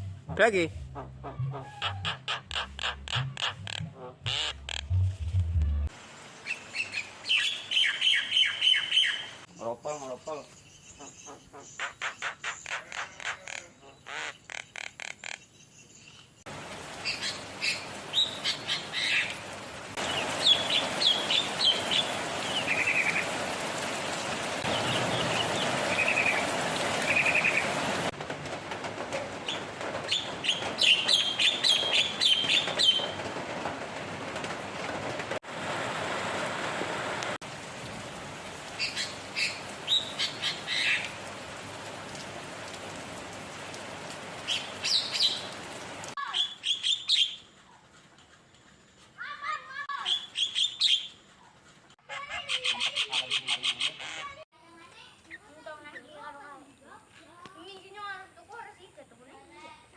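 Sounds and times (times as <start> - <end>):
songbird chirping and trilling: 6.5 - 16.5, 46.2 - 47.5, 50.0 - 51.2.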